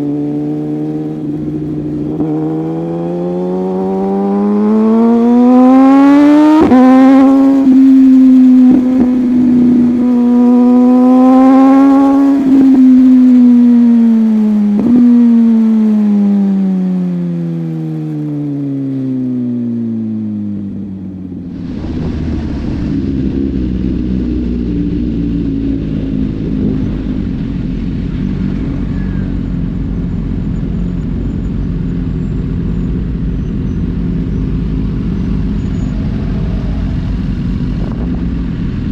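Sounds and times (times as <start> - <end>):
motorcycle engine accelerating: 0.0 - 38.9
wind rushing: 21.4 - 28.4.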